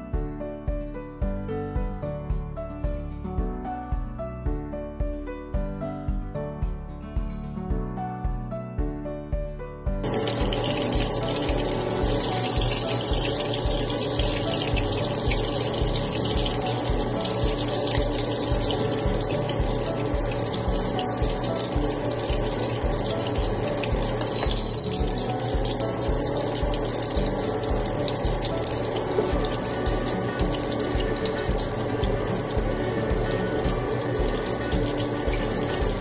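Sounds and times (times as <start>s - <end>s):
background music with low beat: 0.0s - 36.0s
hotdogs sizzling in oil: 10.0s - 36.0s.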